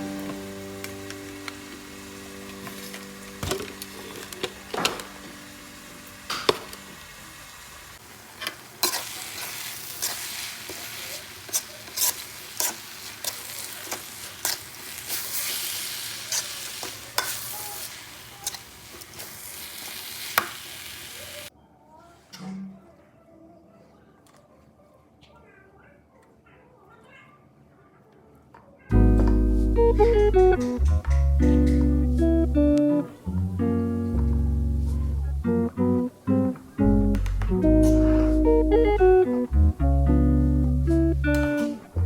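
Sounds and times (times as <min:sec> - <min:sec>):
chilli paste sizzling in oil: 0:00.7 - 0:21.5
spatula scraping a pan: 0:08.8 - 0:19.4.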